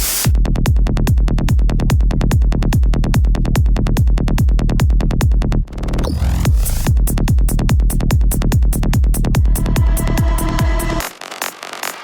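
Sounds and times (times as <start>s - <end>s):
fast hi-hats: 0.0s - 5.4s, 6.5s - 12.0s
kick drum: 0.0s - 5.7s, 6.5s - 11.1s
trance music: 0.0s - 12.0s
noise sweep: 9.4s - 12.0s.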